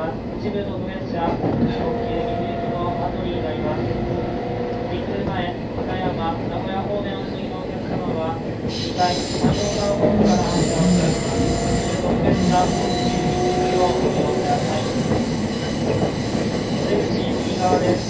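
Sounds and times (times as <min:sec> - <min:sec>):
train wheels rumbling: 0:00.0 - 0:18.0
faint train squeal: 0:08.7 - 0:18.0.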